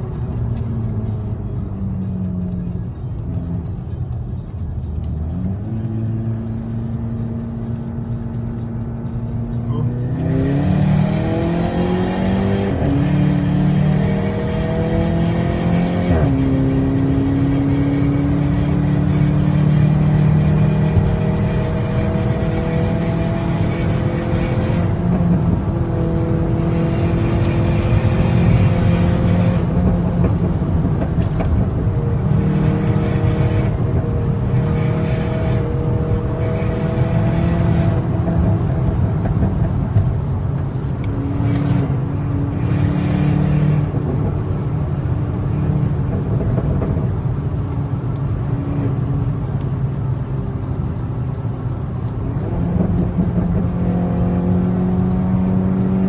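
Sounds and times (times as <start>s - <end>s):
turbocharged car engine revving: 0.0s - 56.0s.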